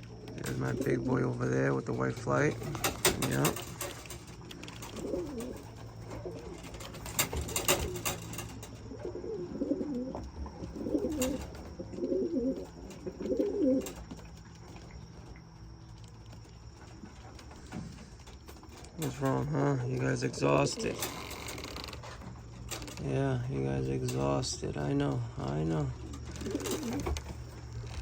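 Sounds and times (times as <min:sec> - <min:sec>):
pigeons cooing: 0:00.0 - 0:15.9, 0:22.0 - 0:27.8.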